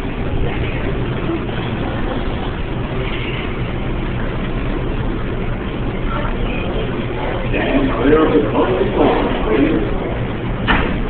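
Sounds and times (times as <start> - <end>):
subway train equipment humming: 0.0 - 11.0.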